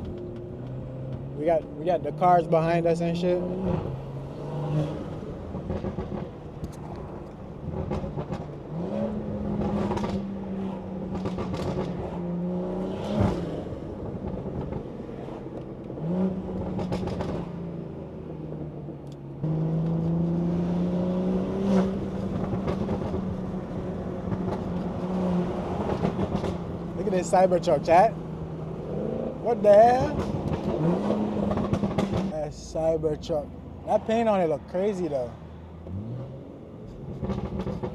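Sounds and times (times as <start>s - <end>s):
exhaust crack: 0.0s - 12.2s, 21.9s - 37.9s
car engine with loud exhaust: 0.0s - 37.9s.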